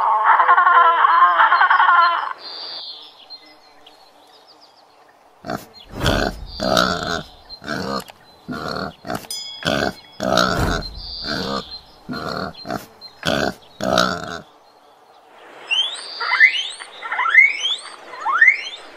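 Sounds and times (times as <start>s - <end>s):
wild boar grunting: 5.4s - 14.4s.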